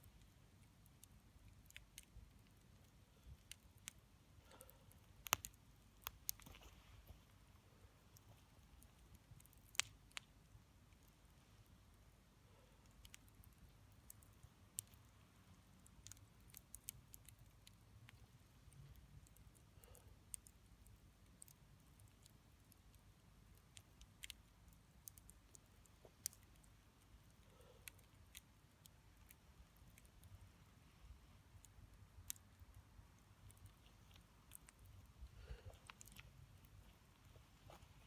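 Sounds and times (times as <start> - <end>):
wood bonfire crackling: 0.0 - 38.0
fire pops and snaps: 5.0 - 6.7.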